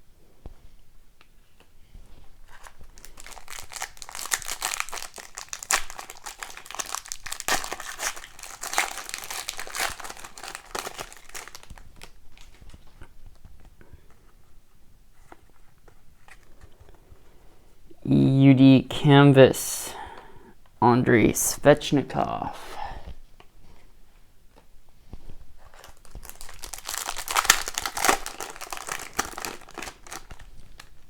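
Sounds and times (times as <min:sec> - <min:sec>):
cards rustling: 0:02.4 - 0:14.3, 0:25.6 - 0:31.0
foil wrapper tearing and crinkling: 0:02.5 - 0:12.7, 0:25.6 - 0:31.0.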